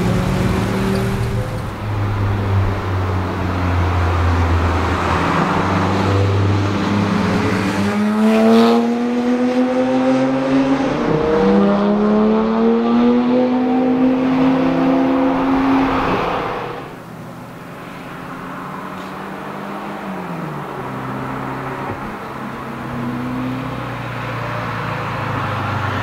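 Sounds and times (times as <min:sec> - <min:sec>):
car engine rumbling and accelerating: 0:00.0 - 0:26.0.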